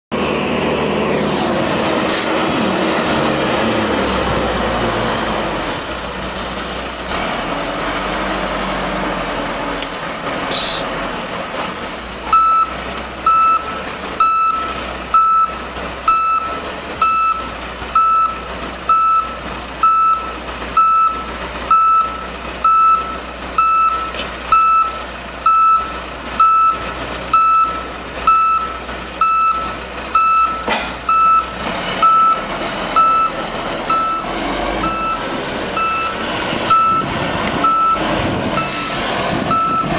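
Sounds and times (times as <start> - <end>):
loader engine revving: 0.1 - 39.9
backup alarm beeping: 12.3 - 12.7, 13.3 - 32.4, 33.0 - 35.2, 35.8 - 38.0, 39.5 - 39.9.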